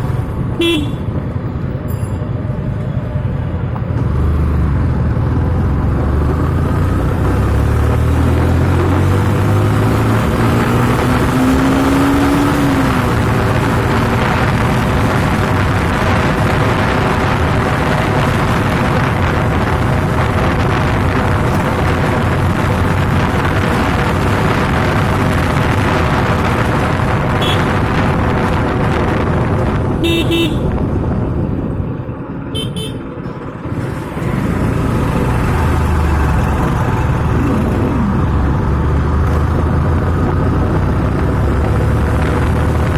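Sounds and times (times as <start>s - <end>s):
motorcycle engine and wind rumble: 0.0s - 42.9s
horn toots: 0.6s - 1.2s, 27.4s - 27.9s, 30.0s - 30.7s, 32.6s - 33.1s.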